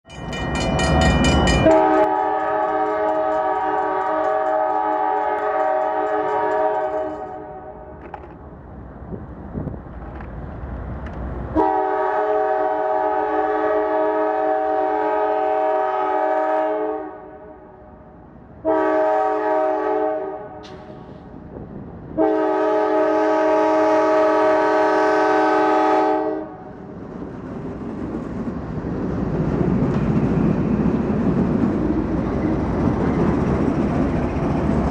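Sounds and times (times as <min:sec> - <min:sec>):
train rumble: 0:00.1 - 0:34.9
locomotive air horn blasts: 0:01.6 - 0:08.0, 0:11.6 - 0:17.6, 0:18.6 - 0:20.8, 0:22.2 - 0:26.7.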